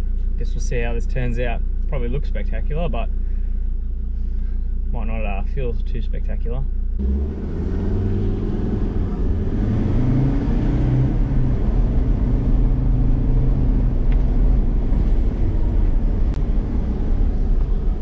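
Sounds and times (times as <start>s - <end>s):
vehicle engine pulling under load: 7.0s - 18.0s.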